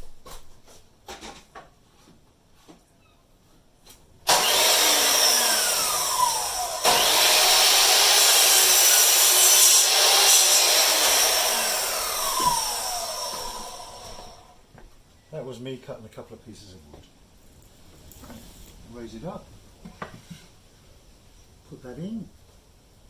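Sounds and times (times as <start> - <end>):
power saw cutting wood: 4.3 - 14.6.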